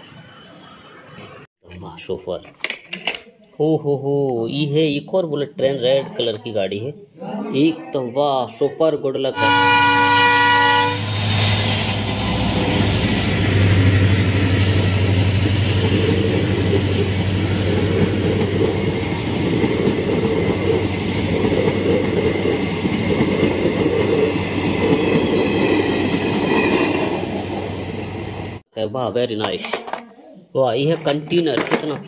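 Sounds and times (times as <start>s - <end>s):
train wheels on rails: 10.8s - 28.6s
locomotive low hum: 11.2s - 26.4s.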